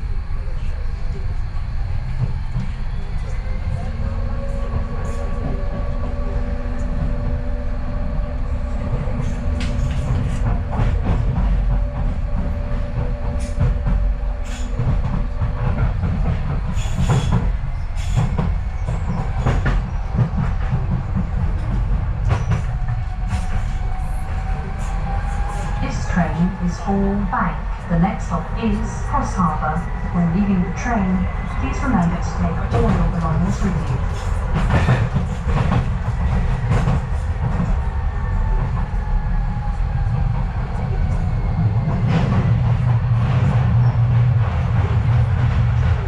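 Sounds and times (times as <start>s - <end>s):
train rumble inside carriage: 0.0s - 46.0s
rail clicks: 9.1s - 39.0s.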